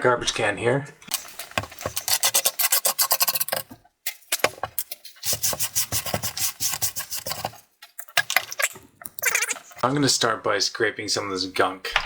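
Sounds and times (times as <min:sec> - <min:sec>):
scraping dust off cooling fan: 0:05.2 - 0:07.6.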